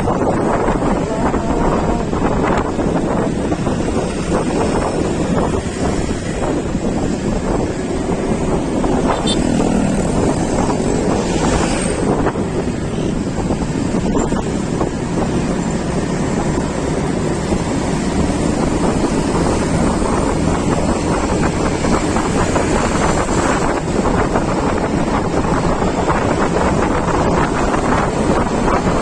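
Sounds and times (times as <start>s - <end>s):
vehicle running noise: 0.0s - 29.0s
wind buffeting microphone: 0.0s - 29.0s.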